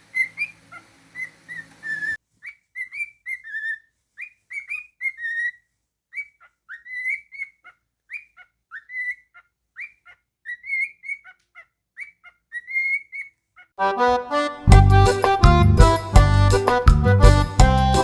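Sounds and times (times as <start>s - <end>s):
cockatiel whistling: 0.0s - 13.4s
loud music: 13.8s - 18.0s.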